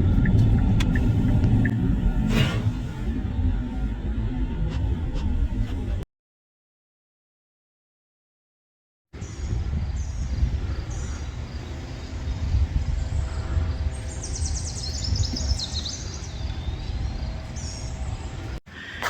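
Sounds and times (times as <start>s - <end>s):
wind rumbling on microphone: 0.0s - 6.0s, 9.2s - 18.6s
small birds chirping: 9.2s - 18.6s.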